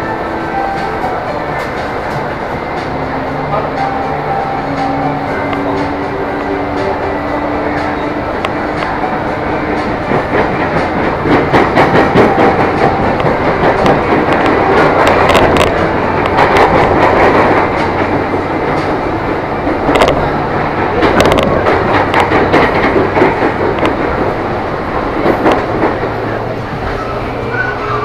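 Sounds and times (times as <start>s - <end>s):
train wheels rumbling on track: 0.0s - 28.0s
sharp clicks over rails: 4.8s - 27.0s.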